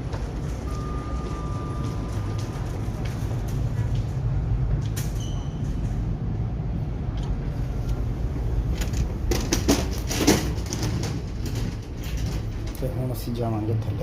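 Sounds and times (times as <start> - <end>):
steady low hum: 0.0 - 14.0
lift chime: 0.6 - 3.0
knocks and rustling: 8.4 - 12.8.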